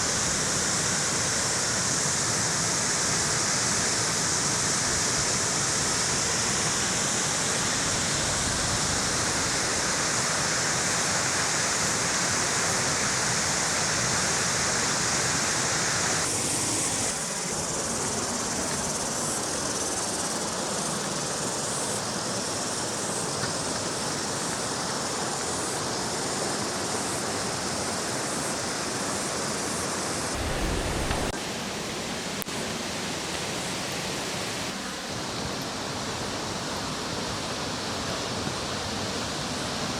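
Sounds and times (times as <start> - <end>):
water rushing: 30.3 - 38.2.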